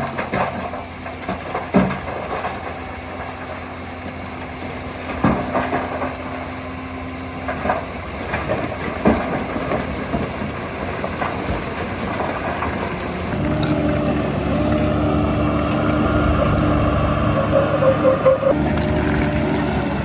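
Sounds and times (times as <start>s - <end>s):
heavy diesel engine running: 0.0s - 20.0s.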